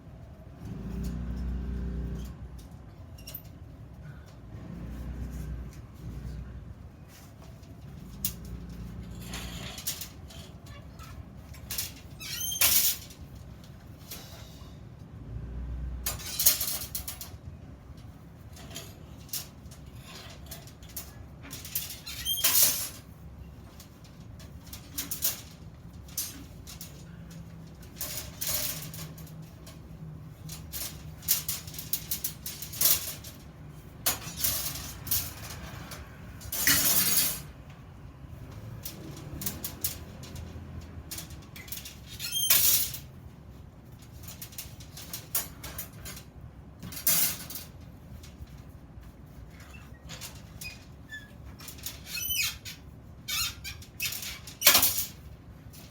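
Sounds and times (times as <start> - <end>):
steel parts clinking: 16.0 - 17.4, 23.6 - 37.6.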